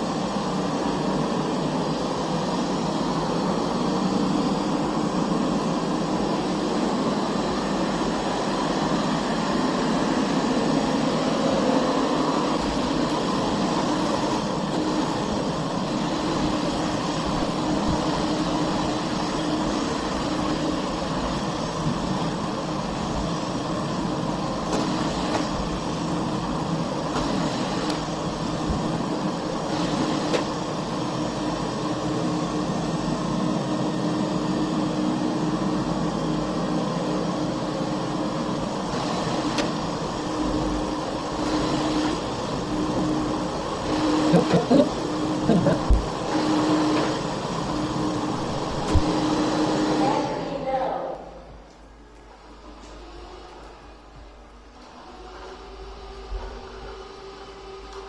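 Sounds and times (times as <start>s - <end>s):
robot vacuum motor whirring: 3.4s - 31.6s, 38.6s - 50.4s.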